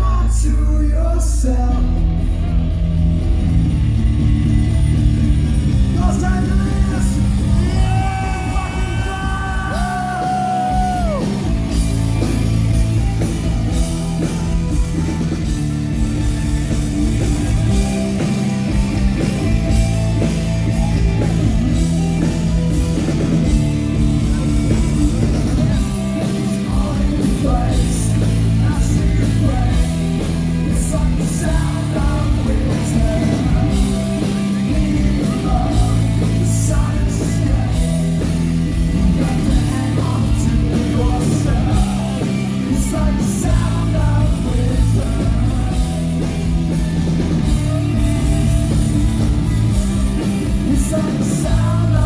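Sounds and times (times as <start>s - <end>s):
rock band playing live: 0.0s - 52.0s
person singing: 5.9s - 12.3s, 24.1s - 46.5s, 50.2s - 52.0s.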